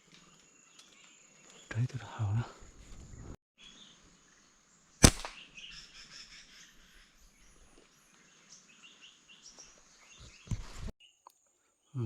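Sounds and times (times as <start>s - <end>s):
faint bird chirps: 3.6s - 12.0s
slingshot snap: 5.0s - 5.4s.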